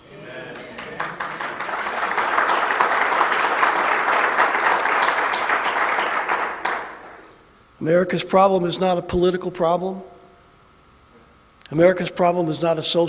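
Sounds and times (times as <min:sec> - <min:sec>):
congregation applauding: 0:00.3 - 0:07.4.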